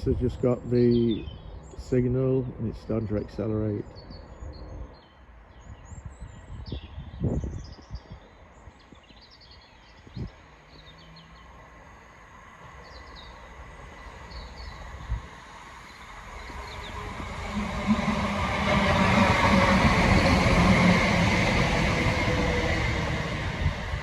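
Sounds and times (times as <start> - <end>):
train rumble: 11.4 - 24.0.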